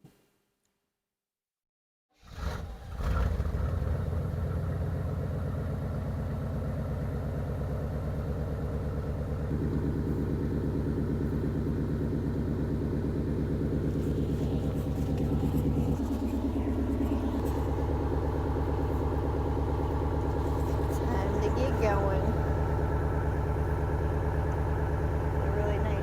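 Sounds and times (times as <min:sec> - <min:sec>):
pickup truck engine running: 0:03.3 - 0:26.0.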